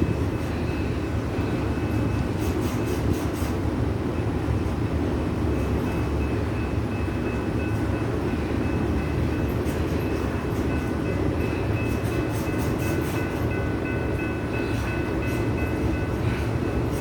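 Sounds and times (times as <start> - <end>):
steel wheels rumbling on rail: 0.0 - 17.0.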